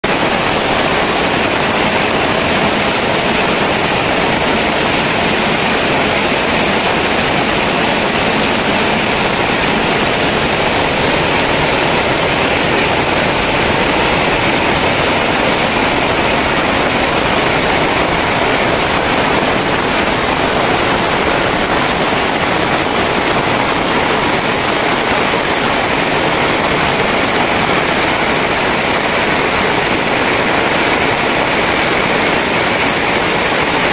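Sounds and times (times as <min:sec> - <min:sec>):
heavy rain downpour: 0:00.0 - 0:33.9.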